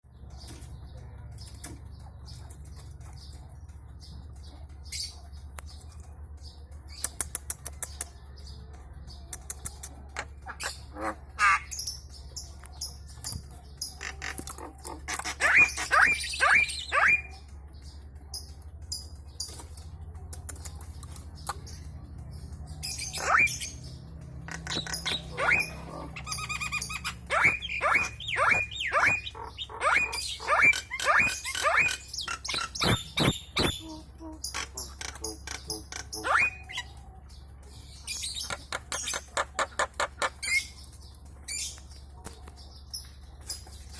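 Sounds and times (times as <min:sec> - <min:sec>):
starling calling: 0:10.2 - 0:12.2, 0:13.8 - 0:17.4, 0:22.8 - 0:37.0.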